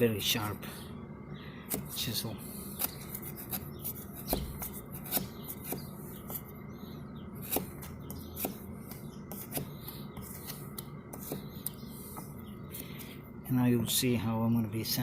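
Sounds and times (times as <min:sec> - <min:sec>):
chisel scraping cuts: 0:01.7 - 0:06.5, 0:07.4 - 0:12.4.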